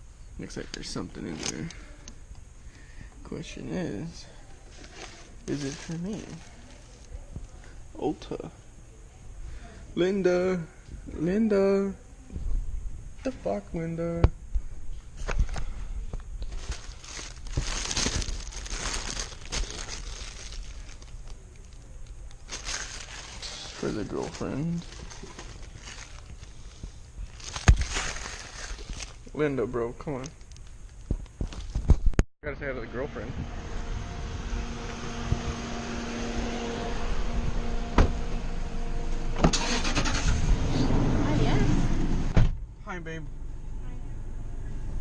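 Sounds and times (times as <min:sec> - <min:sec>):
mechanical hum with low rumble: 0:00.0 - 0:45.0
packaging crinkling and rustling: 0:04.7 - 0:07.1, 0:16.4 - 0:29.4, 0:30.0 - 0:32.0.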